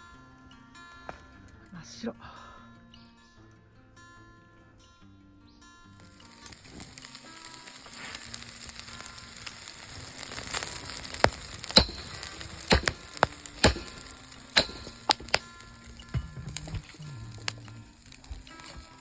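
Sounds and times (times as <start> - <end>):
campfire crackling and popping: 6.0 - 19.0.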